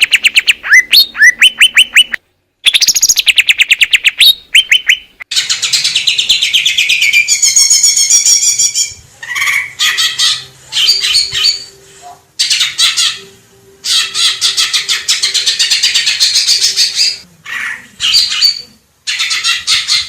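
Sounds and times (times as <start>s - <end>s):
bird singing trills and chips: 0.0s - 9.0s.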